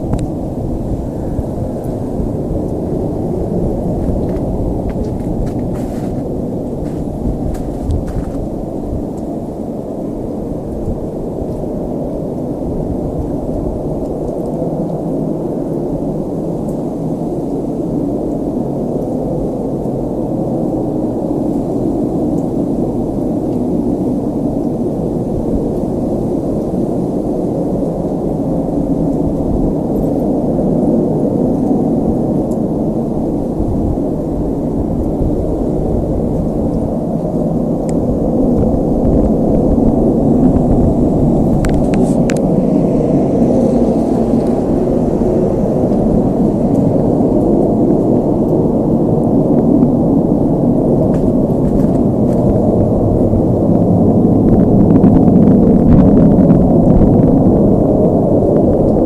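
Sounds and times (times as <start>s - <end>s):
low rumbling drone: 0.0s - 59.0s
loud low rumble: 34.8s - 59.0s.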